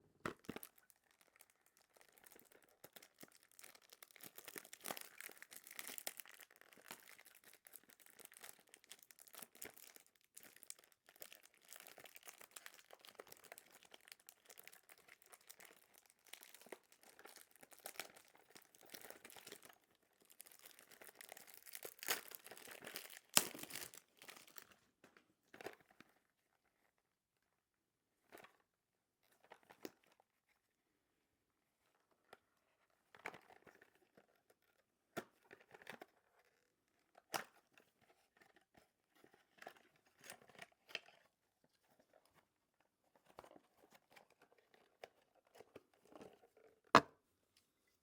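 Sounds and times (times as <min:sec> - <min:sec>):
plastic wrapping crinkling: 0:00.3 - 0:24.8.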